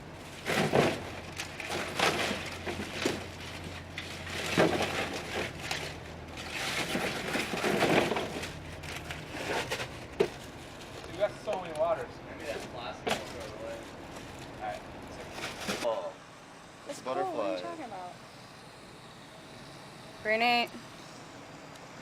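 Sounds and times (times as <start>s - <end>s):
rustling and crinkling: 0.2s - 15.9s.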